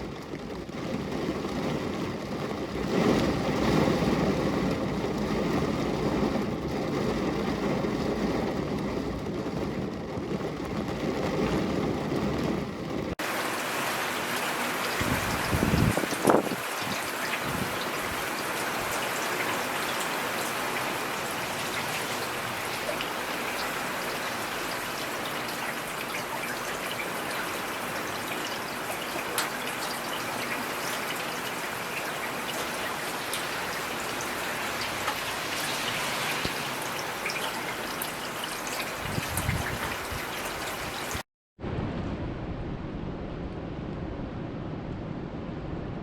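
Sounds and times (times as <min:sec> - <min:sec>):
steady rain falling: 0:00.0 - 0:41.2.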